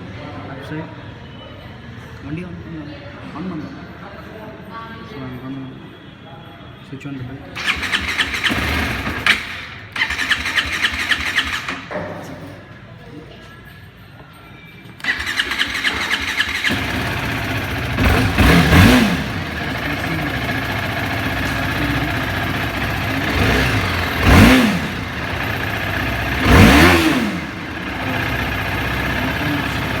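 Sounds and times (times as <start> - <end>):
motorcycle engine idling and revving: 7.6 - 12.1, 15.0 - 30.0.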